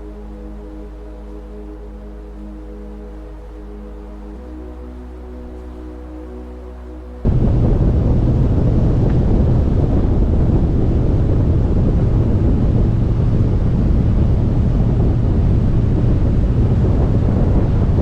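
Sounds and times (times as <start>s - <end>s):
motorcycle engine drone: 7.2s - 18.0s
wind roaring over microphone: 7.2s - 18.0s.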